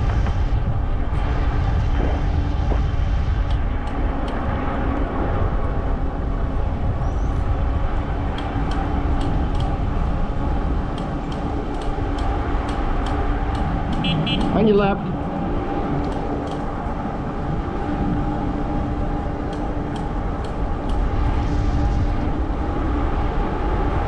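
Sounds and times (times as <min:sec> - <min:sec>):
tires rolling: 0:00.0 - 0:24.0
wind on microphone: 0:00.0 - 0:24.0
light ticks: 0:08.3 - 0:09.8, 0:10.9 - 0:14.6, 0:16.0 - 0:16.7, 0:19.5 - 0:21.1.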